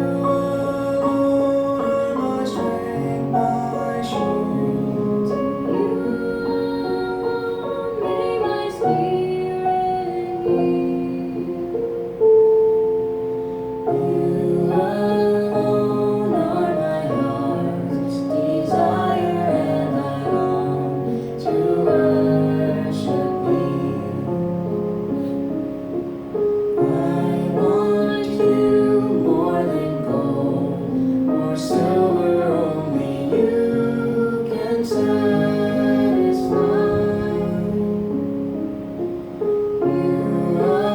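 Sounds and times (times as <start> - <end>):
woman singing slow song: 0.0 - 11.8.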